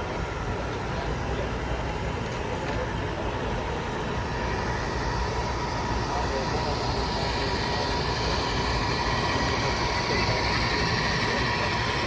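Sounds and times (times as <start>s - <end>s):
model train rumbling on track: 0.0s - 12.0s.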